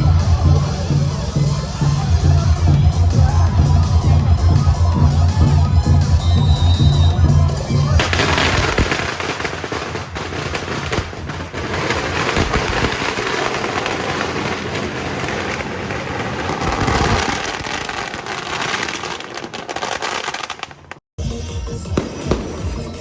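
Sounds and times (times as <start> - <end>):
firecrackers crackling: 3.2 - 21.0, 21.9 - 23.0.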